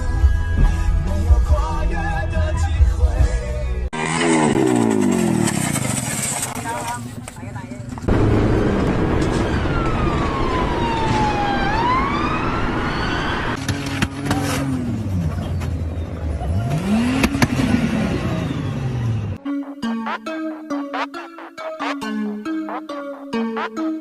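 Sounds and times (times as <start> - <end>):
engine revving: 4.0 - 6.6, 16.1 - 19.4
car road noise: 4.0 - 22.1
wailing tone sliding in pitch: 19.4 - 24.0.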